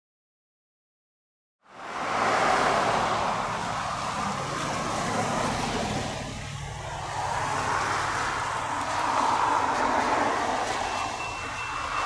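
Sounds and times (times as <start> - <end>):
diesel locomotive engine hum: 1.7 - 12.0
even rushing noise: 1.8 - 12.0.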